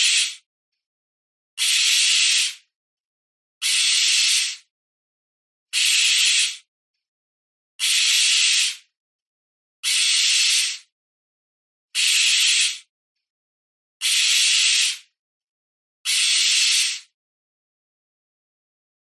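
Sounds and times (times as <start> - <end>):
owl hissing: 0.0 - 0.4, 1.6 - 2.7, 3.6 - 4.7, 5.7 - 6.7, 7.8 - 8.9, 9.8 - 10.9, 12.0 - 12.9, 14.0 - 15.1, 16.1 - 17.2.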